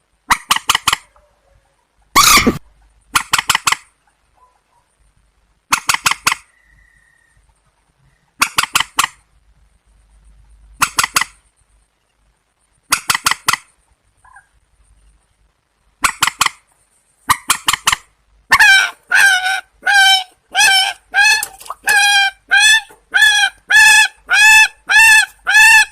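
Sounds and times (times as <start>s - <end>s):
wavering nasal bird calls: 0.3s - 4.7s, 5.7s - 9.3s, 16.0s - 25.9s
harsh marsh bird calls: 17.3s - 25.9s.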